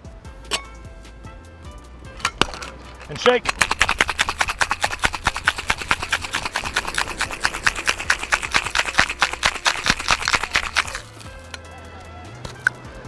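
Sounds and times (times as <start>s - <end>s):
ice rattling in cocktail shaker: 2.1s - 11.6s, 12.5s - 12.8s.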